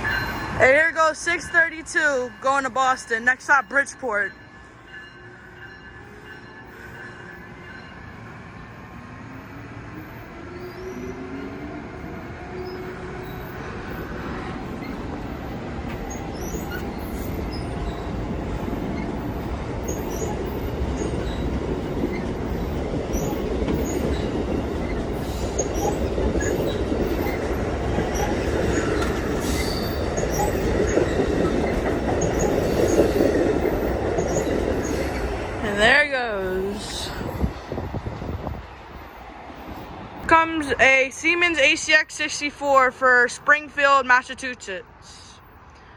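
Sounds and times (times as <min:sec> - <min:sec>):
train wheels rumbling: 0:00.0 - 0:44.0
electric locomotive motor whine: 0:04.3 - 0:40.3
wheel squeals: 0:08.8 - 0:37.6.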